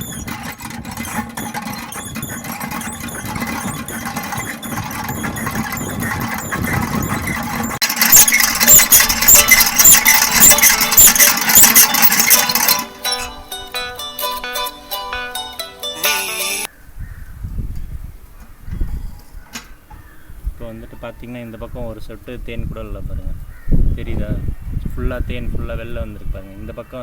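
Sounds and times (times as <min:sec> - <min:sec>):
honey extractor rumble: 0:00.0 - 0:13.2
high squeak: 0:00.0 - 0:14.6.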